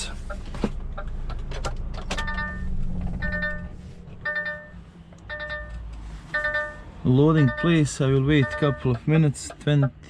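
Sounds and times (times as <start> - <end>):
truck engine hum: 0.0 - 10.0
electronic warning beeper: 6.4 - 9.0.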